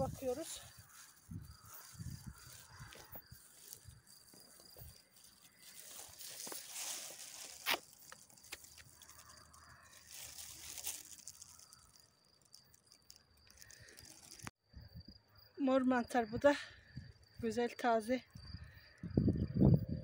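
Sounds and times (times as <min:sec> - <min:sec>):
leaf litter rustling and crunching: 0:00.0 - 0:14.5
mushroom stem snapping: 0:04.8 - 0:14.5.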